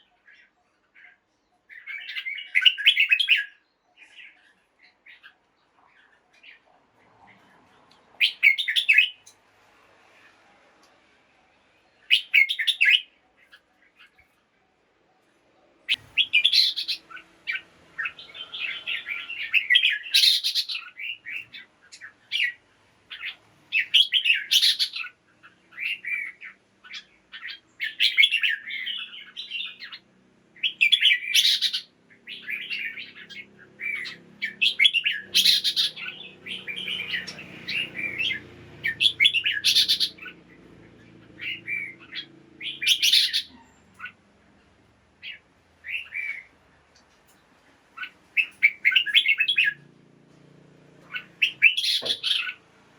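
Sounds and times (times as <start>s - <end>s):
birds singing warbled phrases: 0.0s - 6.7s, 8.2s - 9.4s, 11.9s - 14.4s, 15.7s - 46.6s, 47.9s - 49.9s, 51.0s - 52.7s
bird chattering calls: 15.9s - 25.1s, 30.6s - 40.5s, 41.2s - 44.2s, 51.1s - 52.6s.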